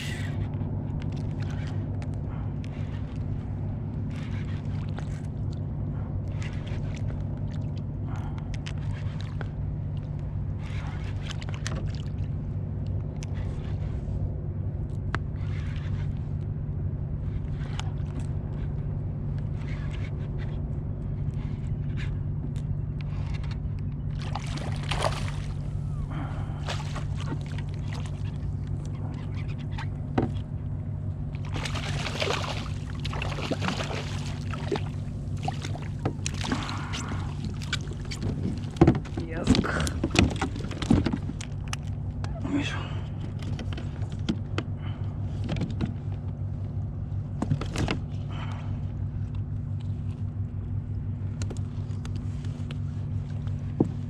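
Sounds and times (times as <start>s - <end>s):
steady low hum: 0.0s - 54.0s
water splashing against kayak hull: 24.1s - 30.6s, 31.2s - 42.2s.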